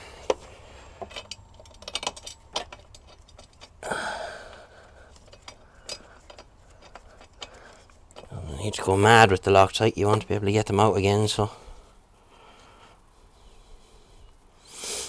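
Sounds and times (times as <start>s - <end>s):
metal bolts and washers clinking: 0.0s - 11.5s.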